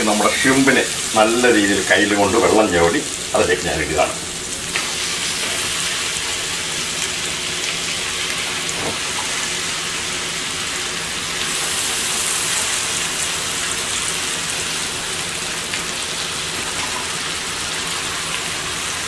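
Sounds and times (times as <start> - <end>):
shrimp sizzling in oil: 4.2 - 19.0.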